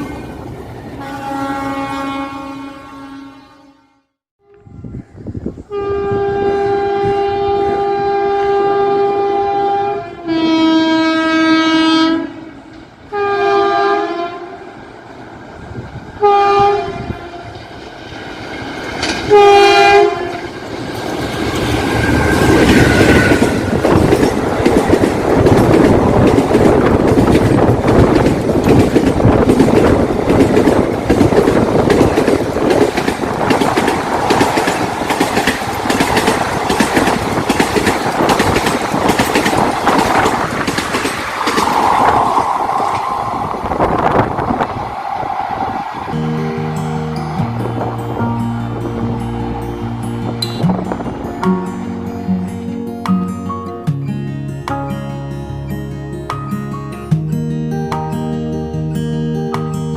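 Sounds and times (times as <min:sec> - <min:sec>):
train rumbling past: 0:00.0 - 0:03.7, 0:04.5 - 0:53.6
two-tone locomotive horn: 0:01.0 - 0:05.0, 0:05.7 - 0:14.8, 0:16.2 - 0:17.7, 0:19.3 - 0:20.6, 0:21.5 - 0:24.0
wheels clattering over rail joints: 0:17.6 - 0:43.8.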